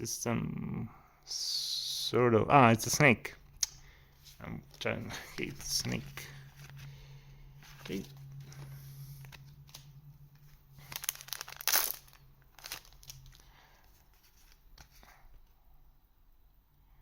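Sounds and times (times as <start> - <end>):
steady low hum: 0.0 - 17.0
foil wrapper crinkling: 7.6 - 15.0.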